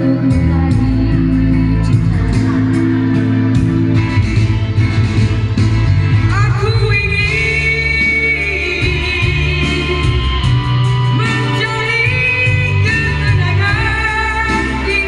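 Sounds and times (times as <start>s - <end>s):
person singing: 0.0s - 3.9s, 6.2s - 15.0s
pop band with pulsing bass: 0.0s - 15.0s.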